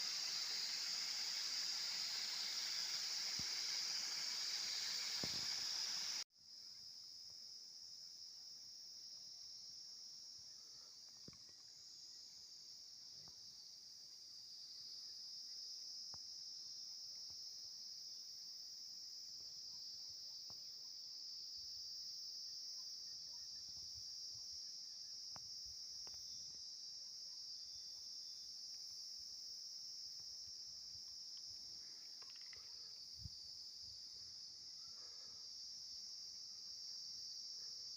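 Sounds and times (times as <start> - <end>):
high-pitched insect chorus: 0.0 - 37.9.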